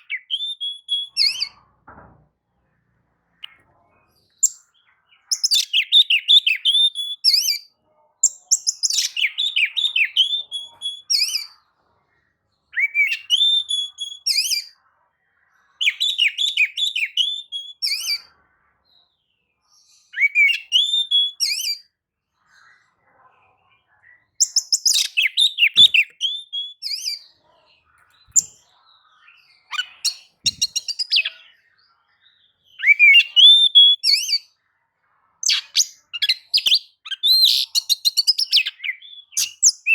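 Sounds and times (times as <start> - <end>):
bird singing whistled phrases: 0.0 - 1.6, 5.3 - 11.5, 12.7 - 14.7, 15.8 - 18.3, 20.1 - 21.9, 24.4 - 27.2, 29.7 - 31.4, 32.7 - 34.5, 35.4 - 39.9.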